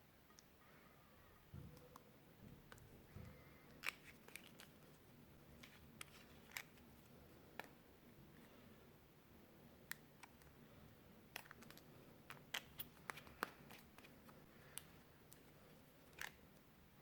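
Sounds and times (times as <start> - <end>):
slime clicks and crackles: 3.7 - 6.8, 11.3 - 16.6.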